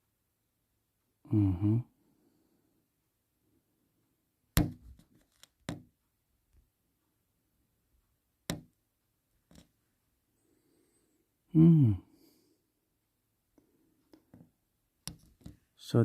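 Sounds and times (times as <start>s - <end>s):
sharp knocks: 4.6s - 5.0s.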